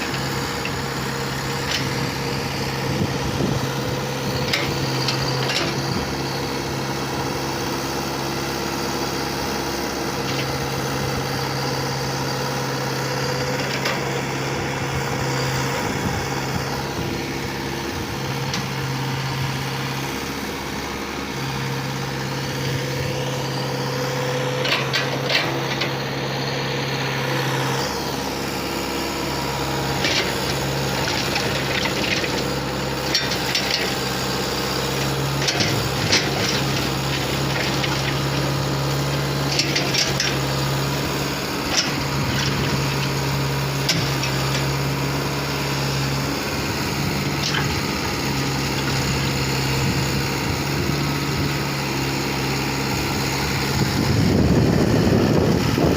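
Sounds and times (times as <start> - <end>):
diesel engine running: 0.0 - 55.9
machine clanks and rattles: 4.3 - 6.1, 24.5 - 26.1, 29.9 - 34.2, 34.9 - 40.7, 41.6 - 44.8, 46.8 - 48.0.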